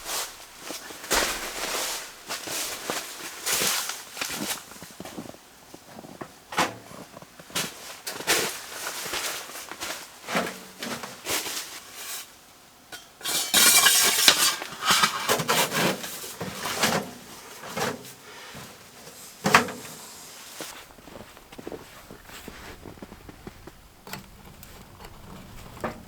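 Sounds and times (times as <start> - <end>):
metal stove parts clanking: 13.0 - 15.5.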